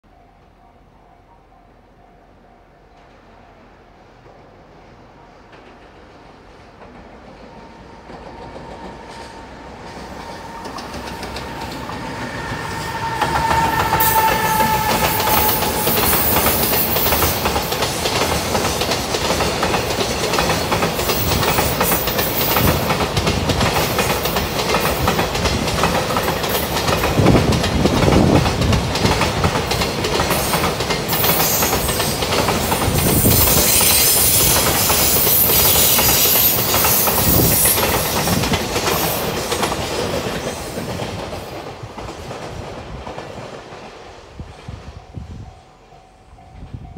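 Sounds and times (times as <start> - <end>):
freight train passing: 0.0 - 46.9
locomotive high whine: 7.4 - 18.9.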